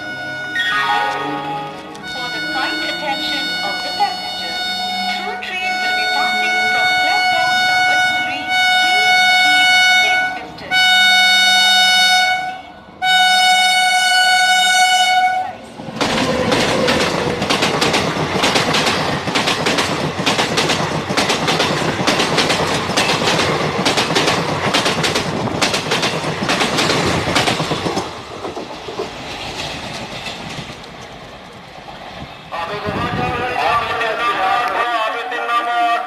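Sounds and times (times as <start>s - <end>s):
train horn blasts: 0.0s - 15.7s
train wheels clattering: 15.9s - 32.3s.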